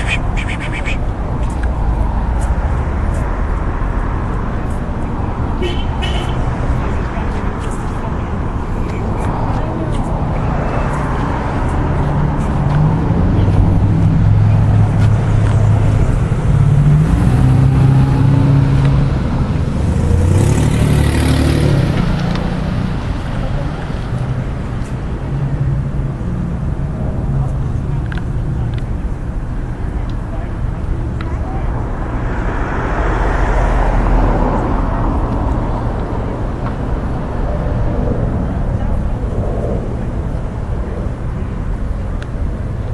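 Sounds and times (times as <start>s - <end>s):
low traffic rumble: 0.0s - 42.9s
vehicles passing: 0.0s - 42.9s.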